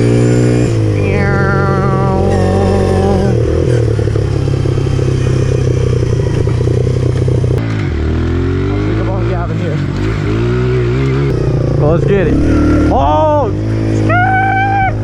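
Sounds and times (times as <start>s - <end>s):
motorbike engine running: 0.0s - 15.0s
rattle: 3.4s - 7.6s.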